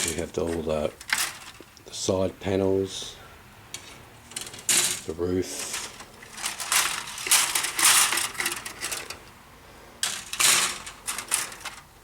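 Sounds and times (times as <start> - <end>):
plastic parts clattering: 0.0 - 1.8, 3.7 - 9.4, 10.0 - 12.0.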